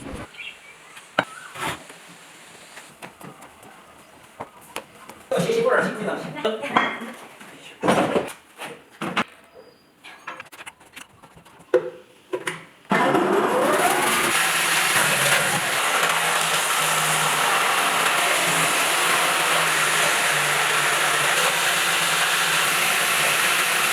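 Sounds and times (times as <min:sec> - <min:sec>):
electric motor whining and humming: 0:00.0 - 0:00.3, 0:13.4 - 0:23.9.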